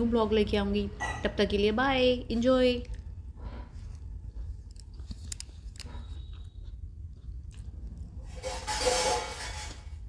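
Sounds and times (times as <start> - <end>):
chewing and mouth clicks: 3.9 - 8.3.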